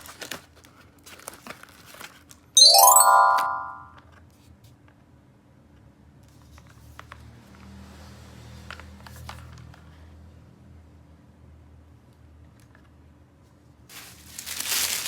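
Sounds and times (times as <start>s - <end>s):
bright chime: 2.6s - 3.9s
toys and packaging handled: 13.9s - 15.0s.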